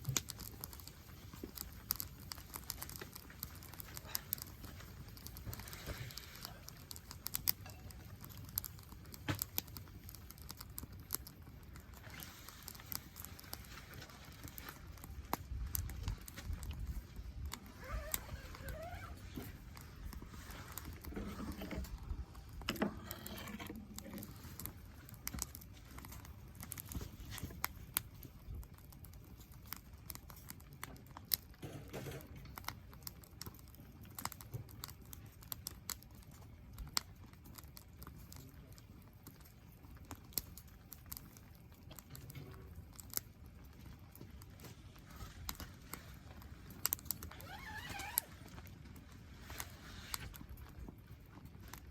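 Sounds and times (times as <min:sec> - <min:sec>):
faint low rumble: 0:00.0 - 0:31.2
campfire crackling: 0:00.0 - 0:31.6, 0:32.2 - 0:51.9.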